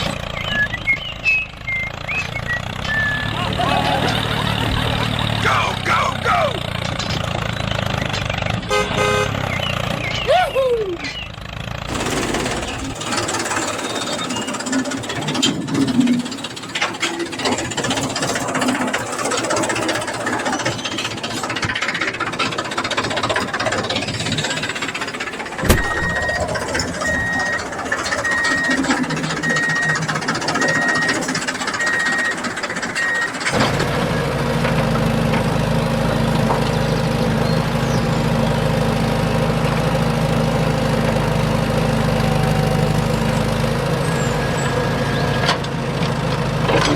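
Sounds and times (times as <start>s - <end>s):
clanking and rattling: 0.0s - 5.4s, 6.6s - 8.6s, 11.0s - 37.6s, 43.9s - 46.9s
diesel engines working: 0.0s - 46.9s
engine idling: 0.0s - 46.9s
sharp knock: 25.6s - 26.4s
warning beeper: 25.6s - 32.4s.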